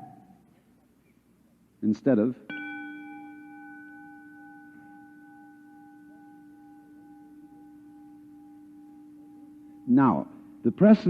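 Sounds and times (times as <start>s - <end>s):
struck bell ringing: 2.5s - 11.0s.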